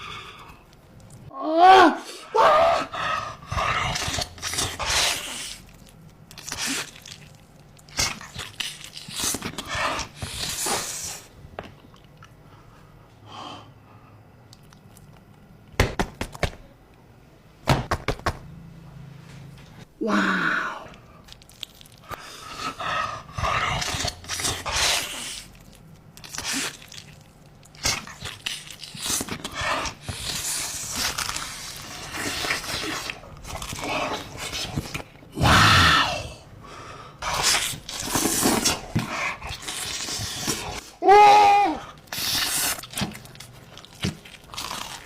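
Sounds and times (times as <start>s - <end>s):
person chewing pizza: 3.4s - 12.8s, 14.4s - 15.5s, 20.9s - 35.3s, 37.2s - 41.0s, 41.9s - 45.0s.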